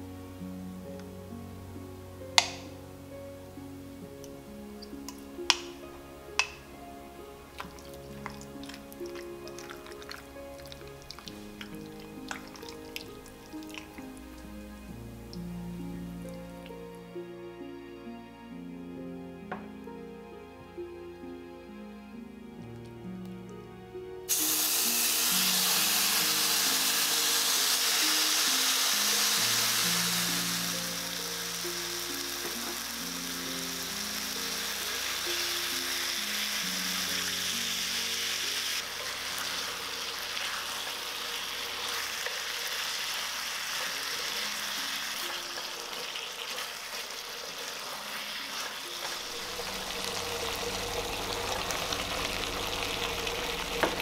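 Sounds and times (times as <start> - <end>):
chicken sizzling in hot oil: 4.8 - 5.8, 7.5 - 14.6, 24.3 - 54.0.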